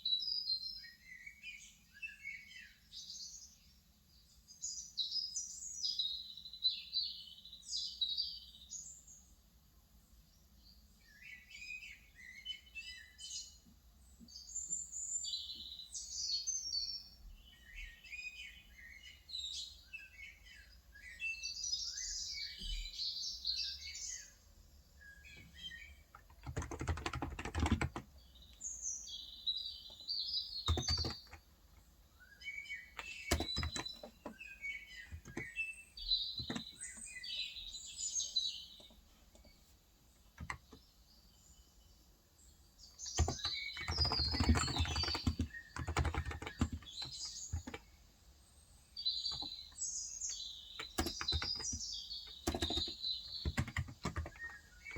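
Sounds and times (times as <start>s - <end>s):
small birds chirping: 0.0s - 54.9s
typing on keyboard: 26.1s - 28.1s, 30.6s - 31.4s, 33.0s - 34.4s, 35.0s - 35.5s, 36.3s - 37.0s, 40.4s - 40.8s, 43.1s - 47.8s, 49.3s - 49.6s, 50.3s - 54.9s.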